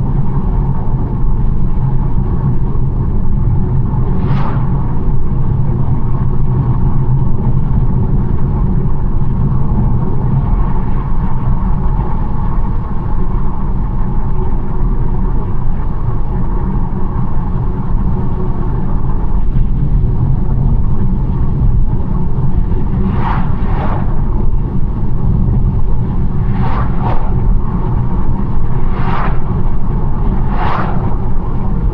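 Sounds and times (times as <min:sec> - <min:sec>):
car engine and tyre rumble: 0:00.0 - 0:31.9
short whooshes: 0:04.2 - 0:04.8, 0:23.0 - 0:24.2, 0:26.4 - 0:27.5, 0:28.8 - 0:29.6, 0:30.3 - 0:31.5.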